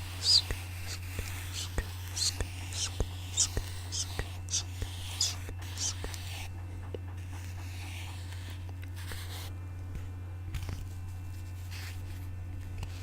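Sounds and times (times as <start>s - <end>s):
faint scratching: 0.0s - 9.5s
steady low hum: 0.0s - 13.0s.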